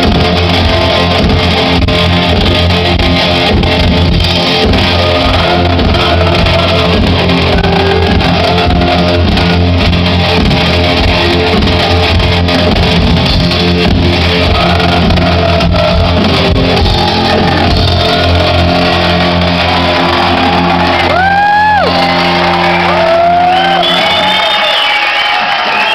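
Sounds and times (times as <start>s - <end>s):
band chord through speakers: 0.0s - 25.9s
crowd shouting: 4.4s - 25.9s
crowd whistling: 14.2s - 25.9s.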